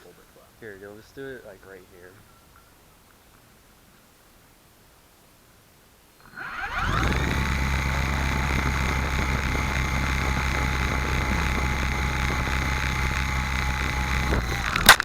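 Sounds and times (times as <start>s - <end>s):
helicopter motor whining: 6.2s - 15.0s.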